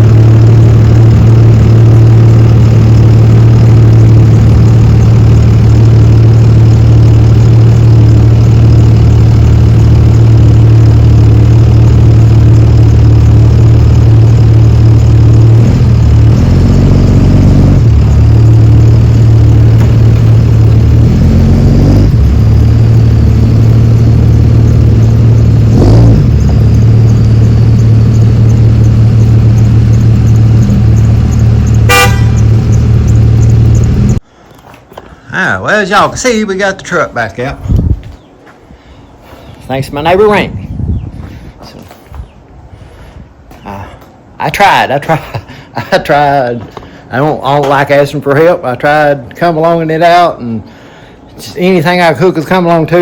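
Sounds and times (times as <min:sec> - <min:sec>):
loud vehicle engine running: 0:00.0 - 0:34.2.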